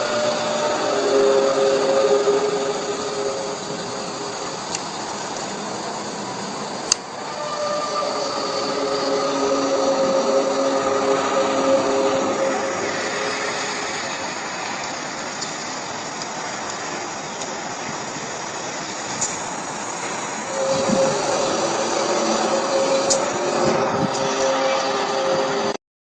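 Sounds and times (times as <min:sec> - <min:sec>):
noisy rumble: 0:00.0 - 0:25.8.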